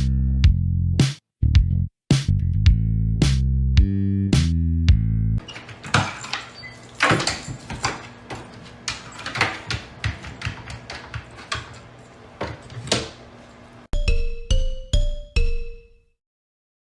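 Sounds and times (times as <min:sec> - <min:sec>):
knocks and thumps in a room: 0:05.4 - 0:13.3.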